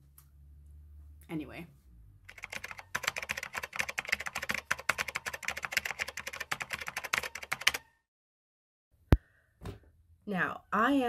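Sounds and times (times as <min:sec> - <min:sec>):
fast typing on keyboard: 0:02.3 - 0:07.9.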